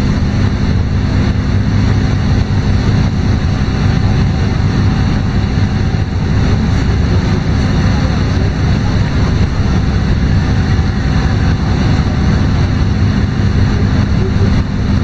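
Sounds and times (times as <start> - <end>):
bus engine and road drone: 0.0 - 15.0.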